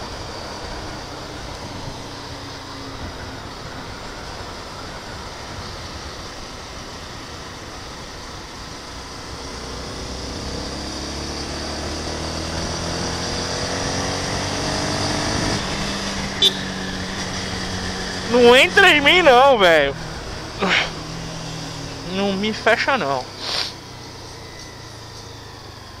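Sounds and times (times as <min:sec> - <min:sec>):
motorcycle engine running: 0:00.0 - 0:26.0
riding wind rushing: 0:15.2 - 0:23.8.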